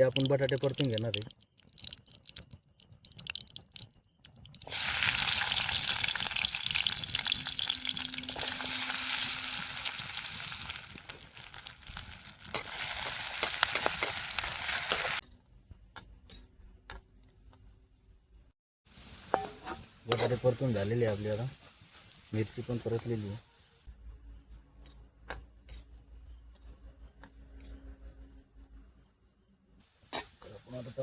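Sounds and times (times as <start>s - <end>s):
potatoes sizzling in hot oil: 4.5s - 15.2s, 18.9s - 23.4s.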